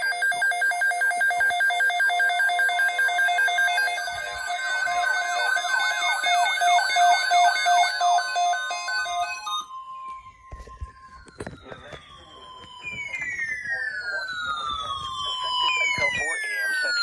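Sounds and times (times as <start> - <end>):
two-pitch electronic warble: 3.3 - 17.0
falling electronic pitch sweeps: 3.8 - 17.0.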